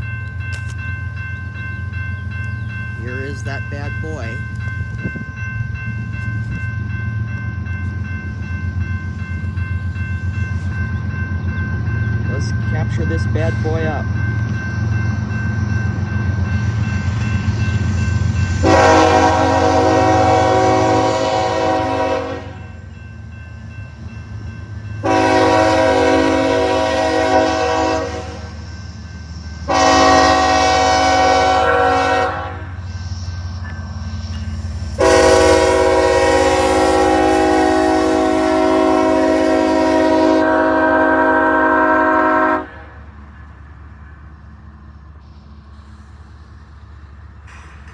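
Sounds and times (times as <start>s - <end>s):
low rumble of passing train: 0.0s - 47.9s
locomotive air horn: 18.6s - 22.6s, 25.0s - 28.6s, 29.7s - 32.8s, 35.0s - 43.0s.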